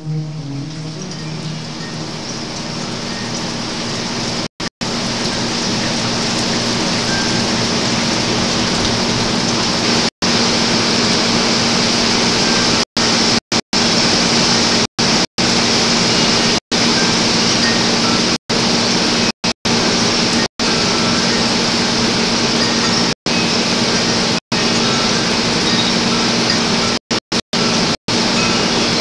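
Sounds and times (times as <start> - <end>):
heavy rain and wind: 0.8 - 23.1.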